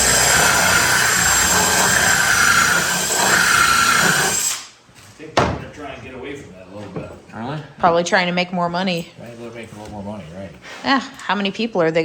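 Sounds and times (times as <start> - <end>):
electric power tool whining: 0.0 - 4.7.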